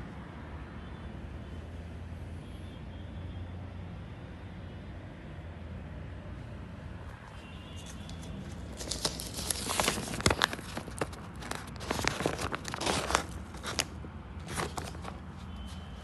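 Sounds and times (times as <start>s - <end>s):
plastic sack crinkling: 7.8s - 15.4s.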